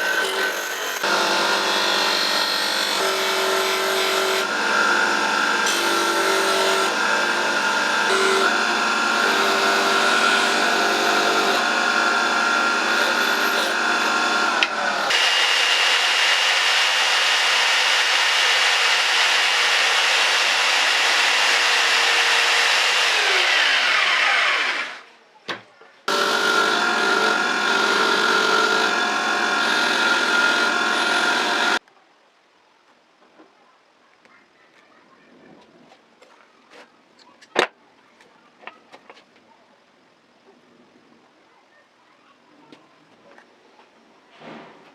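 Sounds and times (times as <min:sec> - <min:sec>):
power tool abrading metal: 0:00.0 - 0:25.1, 0:26.1 - 0:31.8.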